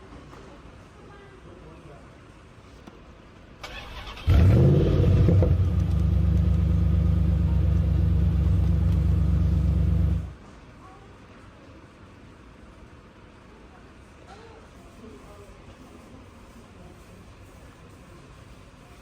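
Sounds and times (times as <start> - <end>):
car engine starting and idling: 3.6 - 10.4.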